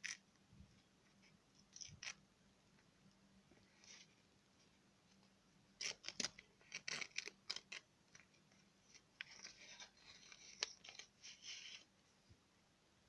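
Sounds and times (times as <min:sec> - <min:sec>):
soft scratching: 0:03.5 - 0:12.4.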